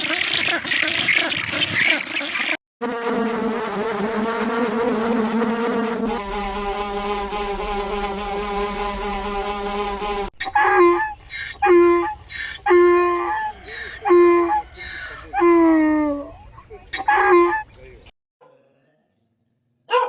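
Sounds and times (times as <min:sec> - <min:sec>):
insect wings buzzing: 0:02.8 - 0:10.3.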